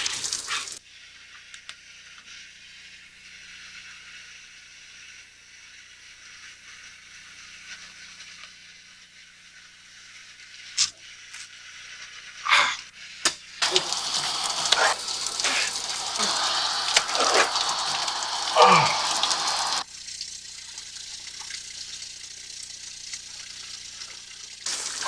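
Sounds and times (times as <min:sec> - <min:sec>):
shower spray running: 0:00.0 - 0:00.8, 0:13.6 - 0:25.0
short falling vocal sounds: 0:13.6 - 0:19.8.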